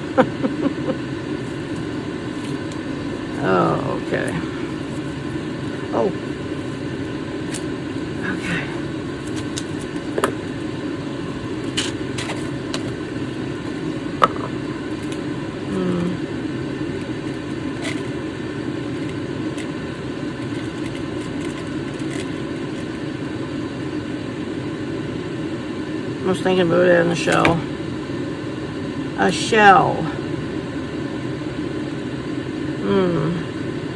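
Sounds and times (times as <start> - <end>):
low background hum: 0.0 - 33.9.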